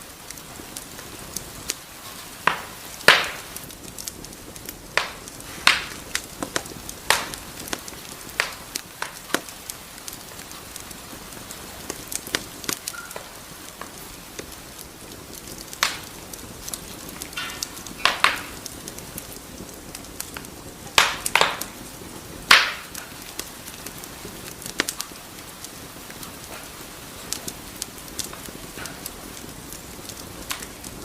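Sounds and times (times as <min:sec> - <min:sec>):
fire crackling clicks: 0:00.0 - 0:31.0
loud fire pops: 0:00.0 - 0:31.0
low hiss of fire: 0:00.0 - 0:31.0.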